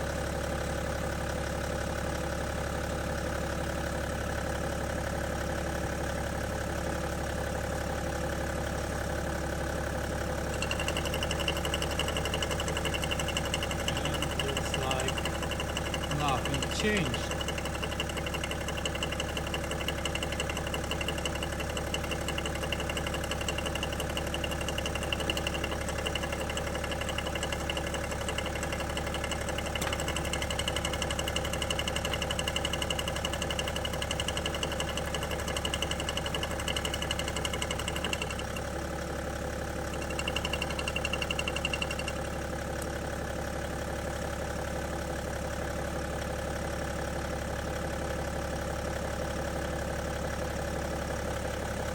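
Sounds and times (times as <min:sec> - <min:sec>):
diesel engine idling: 0:00.0 - 0:51.9.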